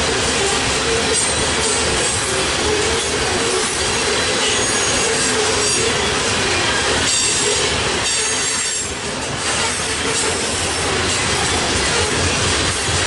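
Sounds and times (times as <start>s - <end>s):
freight train rumbling on rails: 0.0s - 13.0s
high thin wheel squeal: 0.4s - 11.2s.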